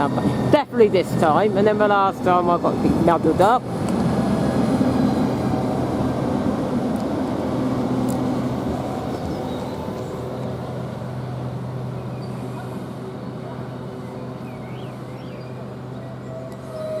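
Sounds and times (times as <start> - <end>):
train electrical hum: 0.0 - 17.0.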